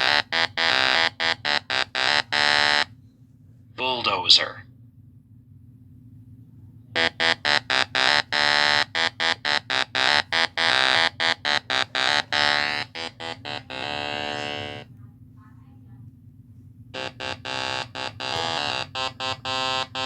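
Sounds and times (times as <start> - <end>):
buzzy horn blasts: 0.0 - 2.9, 7.0 - 14.9, 17.0 - 20.0.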